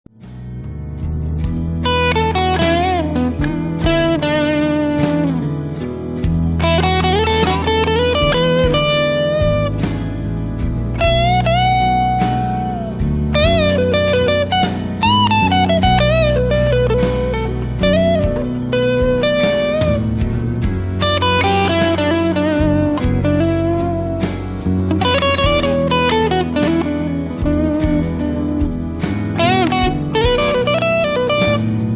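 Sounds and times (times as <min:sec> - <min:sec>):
blues guitar lead: 0:00.1 - 0:31.9
low sustained bass notes: 0:00.2 - 0:31.9.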